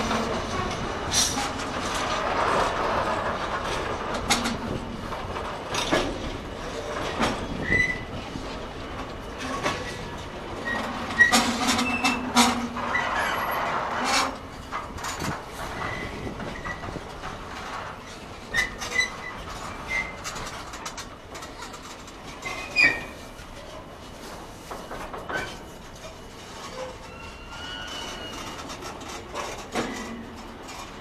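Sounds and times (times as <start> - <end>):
wagons rolling on rails: 0.0 - 31.0
wheels clicking over rail joints: 0.0 - 31.0
high wheel squeals: 26.6 - 28.6.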